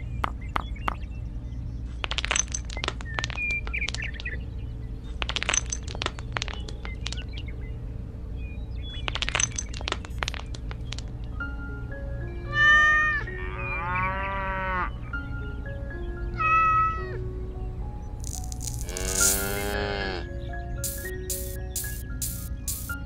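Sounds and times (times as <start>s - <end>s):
steady low hum: 0.0s - 12.5s, 17.3s - 23.0s
pebbles clacking on brick: 2.0s - 4.3s, 5.2s - 7.3s, 9.1s - 11.1s, 18.2s - 19.6s, 20.8s - 23.0s.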